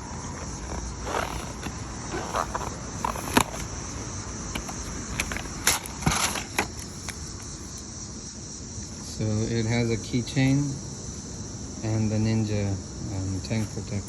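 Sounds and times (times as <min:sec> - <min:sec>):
crickets chirping: 0:00.0 - 0:14.0
packaging crinkling: 0:01.0 - 0:03.8, 0:04.6 - 0:07.2.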